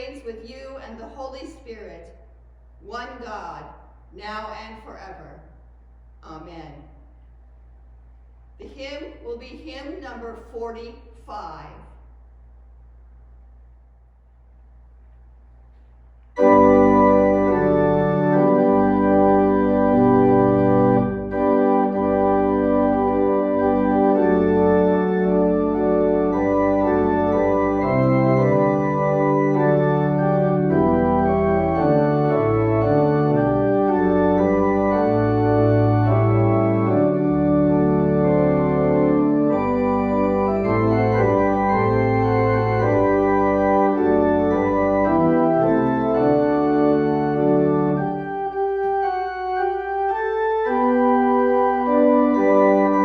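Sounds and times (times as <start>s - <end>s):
church organ playing a hymn: 16.3s - 53.0s.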